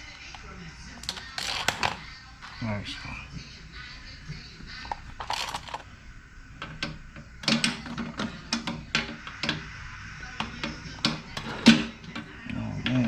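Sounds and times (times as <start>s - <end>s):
hand tools clicking and clanking: 1.0s - 2.6s, 4.9s - 5.8s.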